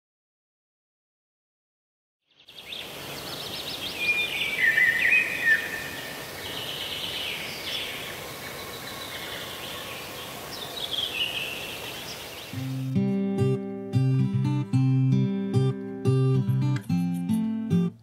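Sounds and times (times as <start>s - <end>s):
birds singing and chirping: 2.3s - 12.9s
outdoor background hiss: 2.3s - 18.0s.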